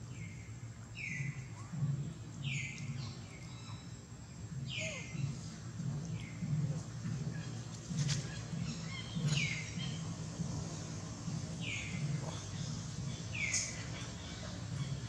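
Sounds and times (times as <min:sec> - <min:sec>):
bird calling: 0:04.6 - 0:05.6, 0:07.3 - 0:10.2, 0:11.6 - 0:15.0.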